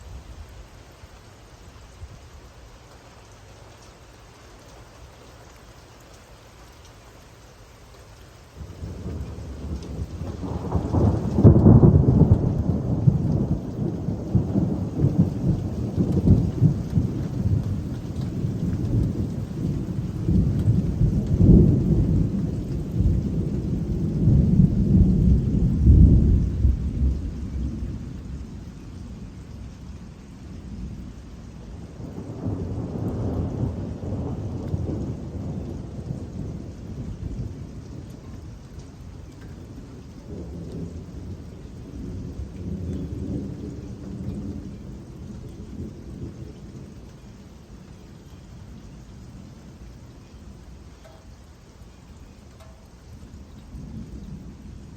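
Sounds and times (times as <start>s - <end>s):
steady rain: 0.0s - 54.9s
thunder rolling: 8.6s - 29.8s, 31.8s - 38.1s.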